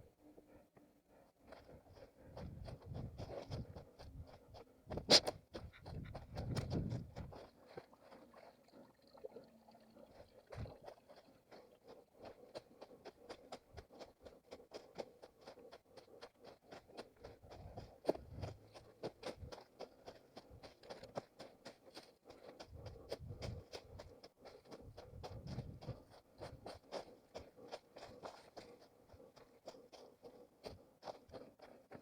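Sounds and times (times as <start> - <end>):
running footsteps on rough ground: 0.0 - 32.0.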